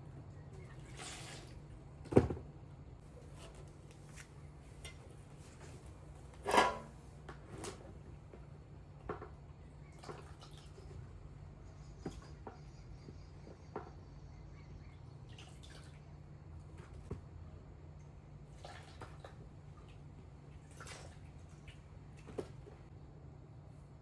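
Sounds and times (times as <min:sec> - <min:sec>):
low steady hum: 0:00.0 - 0:24.0
water dripping and splashing: 0:15.3 - 0:16.0, 0:18.5 - 0:22.6.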